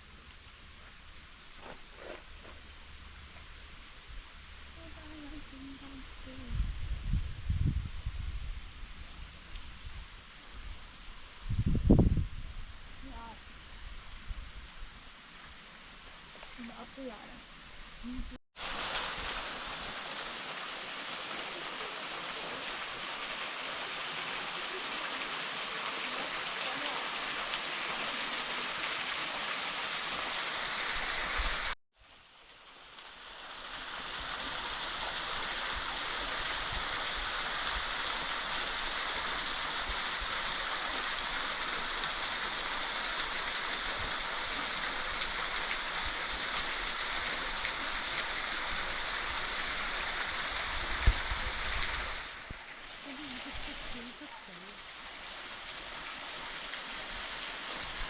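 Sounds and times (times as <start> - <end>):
waterfall and stream rushing: 18.6 - 31.8, 32.5 - 58.0.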